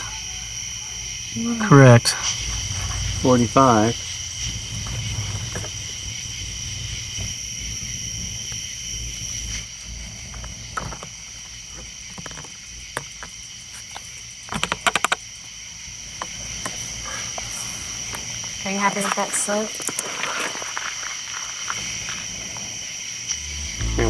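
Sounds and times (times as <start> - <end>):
crickets chirring: 0.0 - 24.0
sharp clicks and knocks: 10.8 - 15.2.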